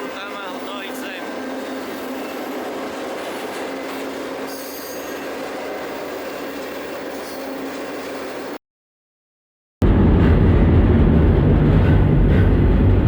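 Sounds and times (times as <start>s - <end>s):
freight train rumbling and rattling: 0.0s - 8.6s, 9.8s - 13.0s
high wheel squeal: 3.2s - 8.6s.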